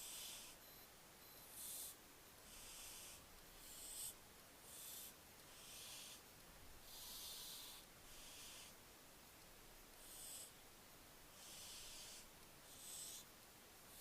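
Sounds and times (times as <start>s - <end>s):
young owl hissing begging call: 0.0s - 0.6s, 1.6s - 6.2s, 11.4s - 13.3s.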